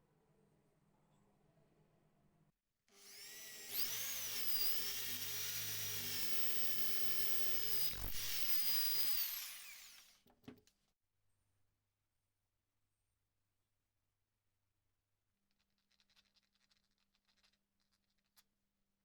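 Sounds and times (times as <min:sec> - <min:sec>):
power tool motor whining: 0:03.0 - 0:10.2.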